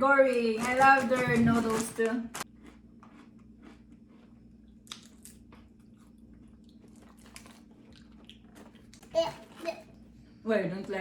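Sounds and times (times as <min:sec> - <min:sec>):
person chewing potato chips: 0:02.4 - 0:09.6.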